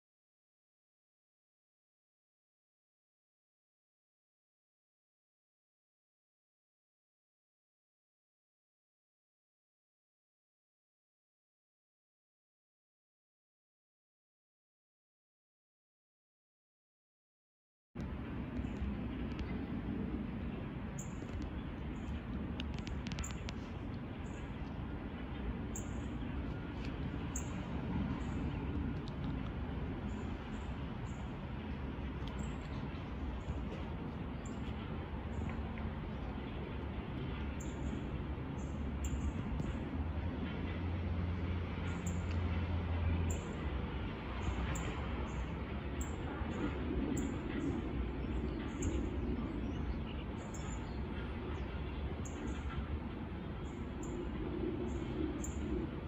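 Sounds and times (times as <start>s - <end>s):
low outdoor rumble: 18.0s - 56.0s.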